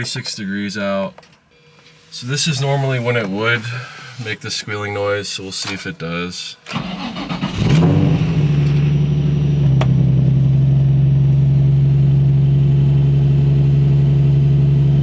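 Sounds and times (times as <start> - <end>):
car engine starting and idling: 6.7 - 15.0.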